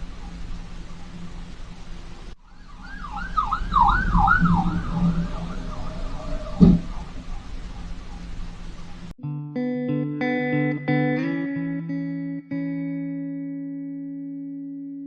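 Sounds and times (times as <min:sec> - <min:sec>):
road noise: 0:00.0 - 0:09.2
siren yelping: 0:02.4 - 0:09.1
sharp thump: 0:06.5 - 0:07.0.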